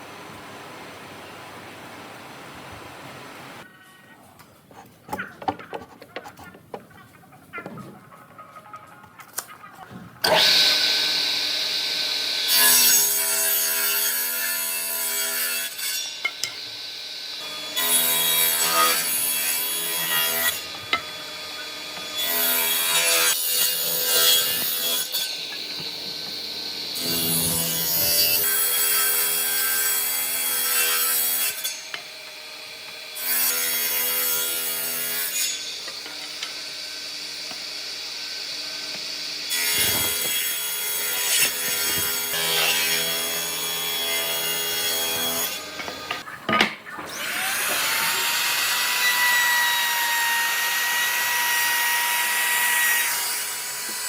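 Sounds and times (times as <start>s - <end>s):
tools sawing and rubbing wood: 17.4s - 54.0s.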